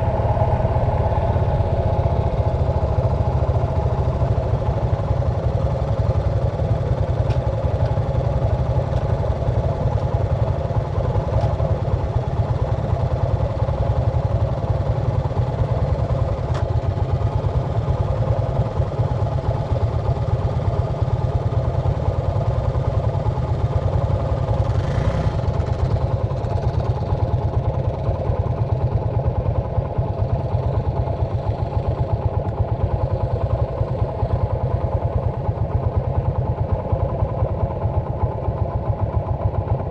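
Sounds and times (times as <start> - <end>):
motor engine idling: 0.0 - 39.9.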